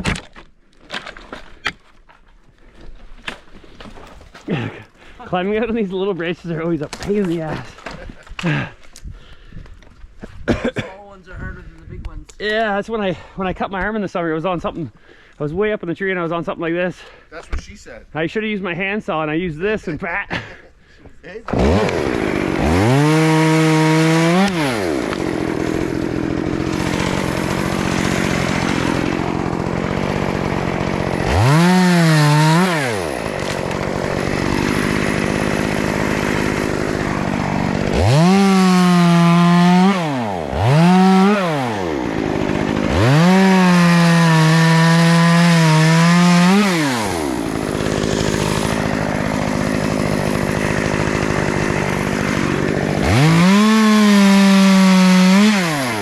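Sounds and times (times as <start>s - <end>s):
chainsaw idling and revving: 21.4s - 56.0s
chainsaw cutting branches: 21.5s - 56.0s.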